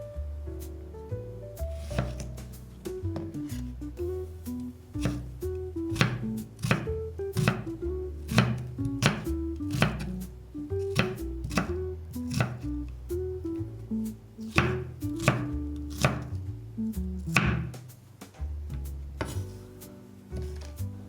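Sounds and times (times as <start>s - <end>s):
background music: 0.0s - 21.0s
knife chopping on cutting board: 1.7s - 3.8s, 5.0s - 12.7s, 14.4s - 16.3s, 17.3s - 17.9s, 19.2s - 19.6s.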